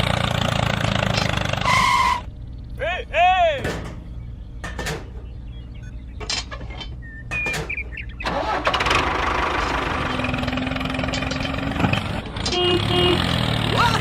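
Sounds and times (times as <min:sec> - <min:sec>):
engine starting and running: 0:00.0 - 0:02.3, 0:06.2 - 0:14.0.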